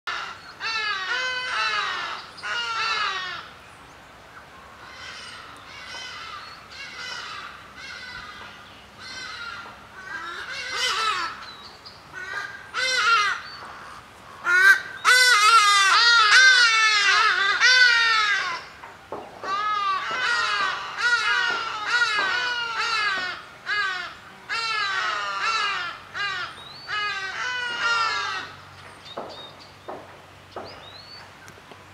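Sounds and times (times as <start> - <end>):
birds calling loudly: 0.1 - 31.8.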